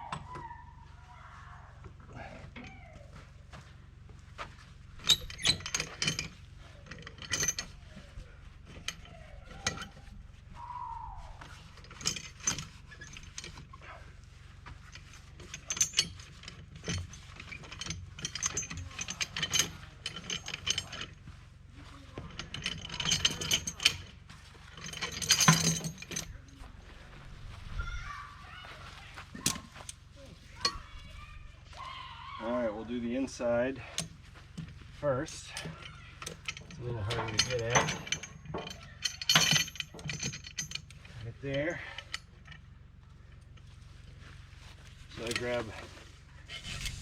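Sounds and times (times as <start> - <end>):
metallic clicking and clanking: 4.6 - 10.2, 11.4 - 14.0, 14.8 - 26.6, 29.3 - 31.4, 33.3 - 42.7, 44.6 - 47.0.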